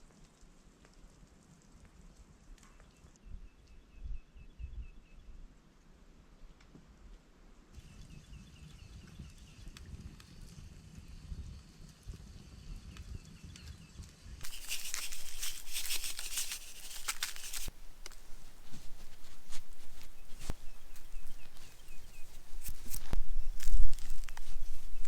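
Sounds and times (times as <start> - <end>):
crunching crackling clicks: 14.4 - 25.0.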